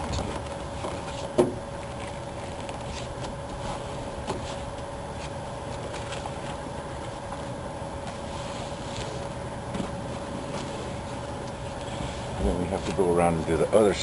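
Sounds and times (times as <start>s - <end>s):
steady background hum: 0.0s - 14.0s
vinyl scraping and crinkling: 0.0s - 14.0s.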